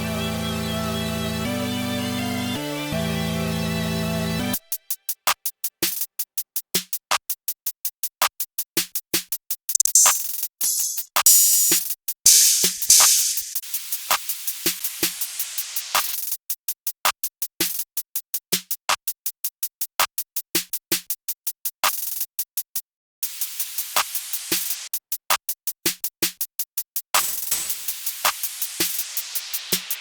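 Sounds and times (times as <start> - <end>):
hi-hat clicks: 9.7 - 13.6, 27.2 - 30.0.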